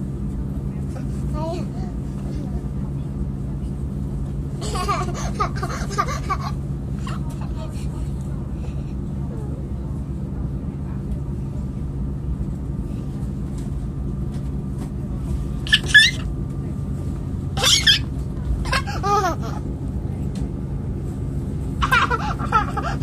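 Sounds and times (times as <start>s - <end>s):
train rumble: 0.0s - 23.0s
child squealing: 15.7s - 16.2s, 17.6s - 18.1s.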